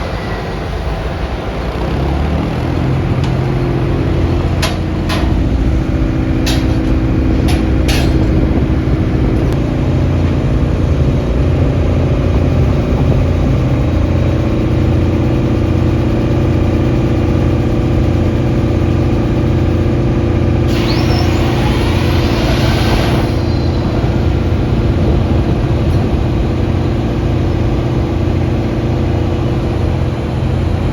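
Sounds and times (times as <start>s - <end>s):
diesel locomotive engine idling: 0.0s - 30.9s
air hissing: 20.7s - 24.8s.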